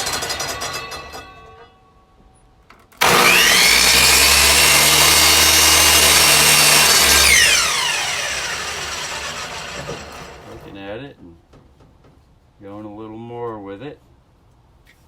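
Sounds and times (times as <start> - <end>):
miter saw cutting wood: 3.0 - 10.7.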